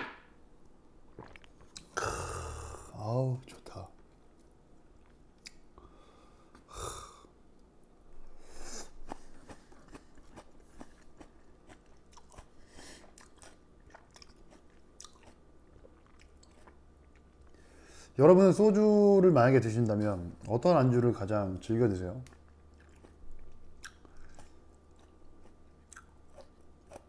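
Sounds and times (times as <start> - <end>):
man chewing food: 0.7 - 2.6, 4.0 - 6.7, 7.5 - 18.0, 22.2 - 27.0.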